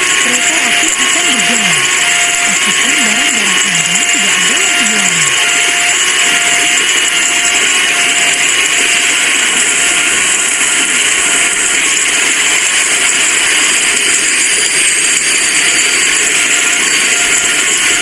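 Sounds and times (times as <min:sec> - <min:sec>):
level crossing alarm beeping: 0:00.0 - 0:18.0.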